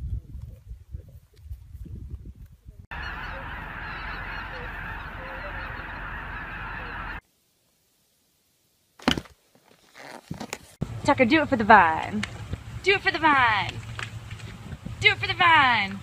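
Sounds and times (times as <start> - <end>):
flock of geese honking: 2.9 - 7.2.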